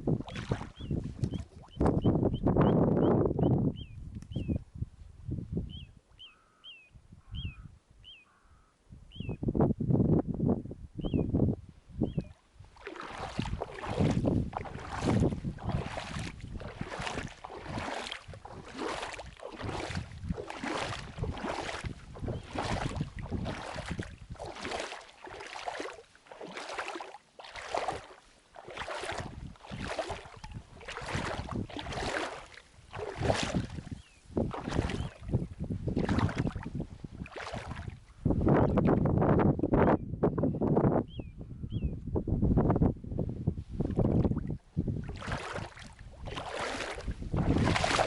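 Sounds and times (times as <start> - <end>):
small waves lapping shore: 0.0 - 0.8, 12.7 - 35.3, 36.0 - 37.9, 45.0 - 48.0
strong wind: 0.0 - 6.0, 8.9 - 24.8, 28.9 - 48.0
wind noise on microphone: 0.0 - 26.0, 28.7 - 48.0.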